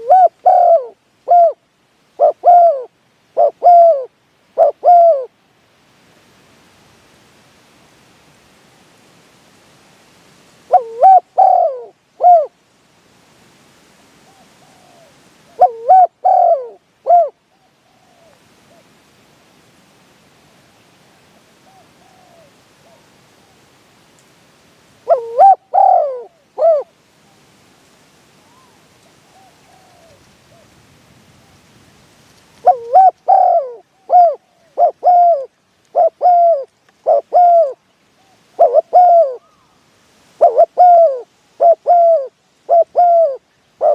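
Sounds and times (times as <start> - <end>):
dove cooing: 0.0 - 1.6, 2.2 - 5.4, 10.7 - 12.6, 14.3 - 18.4, 21.6 - 23.1, 25.0 - 26.9, 28.4 - 30.7, 32.6 - 39.8, 40.4 - 43.9.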